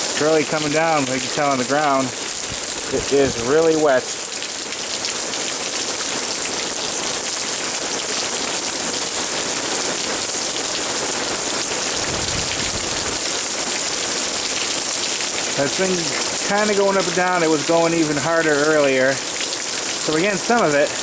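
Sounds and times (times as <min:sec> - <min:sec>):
heavy rain hitting ground: 0:00.0 - 0:21.0.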